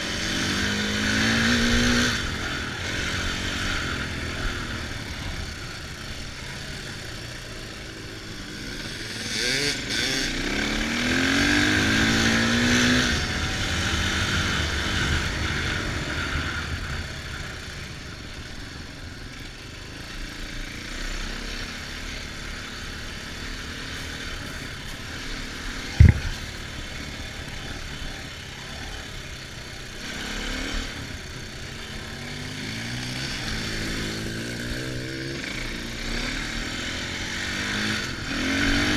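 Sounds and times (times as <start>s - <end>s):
dirt bike engine revving: 0.0s - 17.8s, 19.8s - 38.9s
sharp knock: 26.0s - 26.3s.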